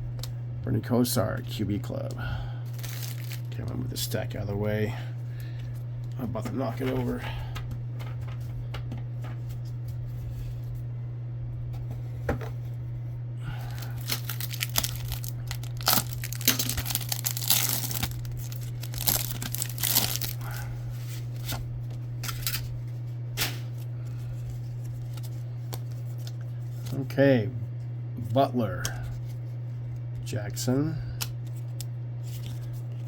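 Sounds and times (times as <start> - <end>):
low electrical hum: 0.0 - 33.0
foil wrapper tearing and crinkling: 2.7 - 3.6, 13.6 - 20.7, 21.3 - 22.7.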